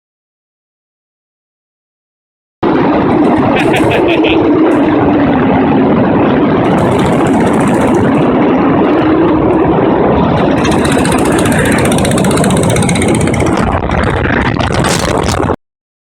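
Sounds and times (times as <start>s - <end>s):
motorcycle engine running: 2.8s - 5.4s, 6.6s - 15.4s.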